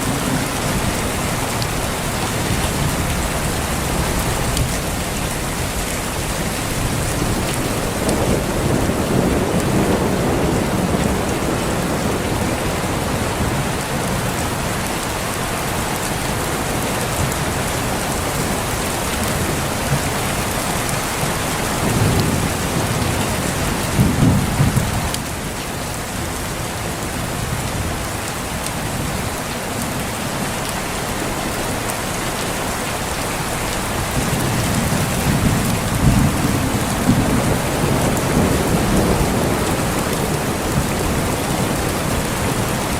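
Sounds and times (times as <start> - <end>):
rolling thunder: 0.0 - 14.6, 19.2 - 25.6, 34.0 - 42.9
heavy rain: 0.0 - 42.9.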